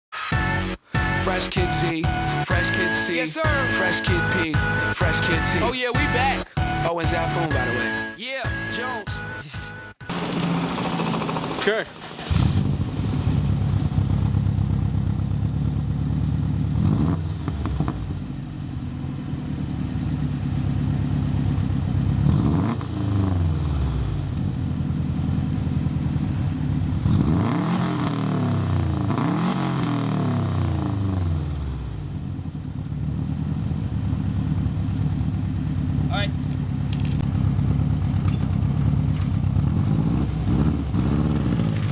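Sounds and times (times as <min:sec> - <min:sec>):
car engine idling and revving: 0:10.0 - 0:41.9.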